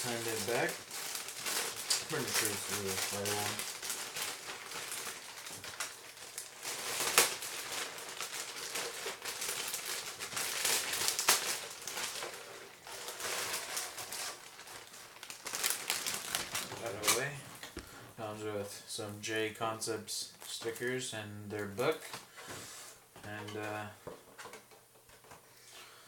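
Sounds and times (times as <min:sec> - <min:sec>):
plastic packaging crinkling: 0:00.0 - 0:18.2.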